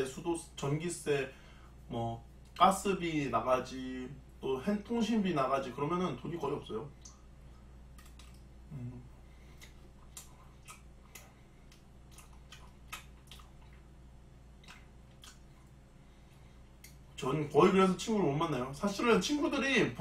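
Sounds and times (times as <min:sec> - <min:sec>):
low steady hum: 0:00.0 - 0:20.0
wet mouth chewing clicks: 0:07.9 - 0:08.5, 0:09.4 - 0:15.8, 0:16.8 - 0:17.0.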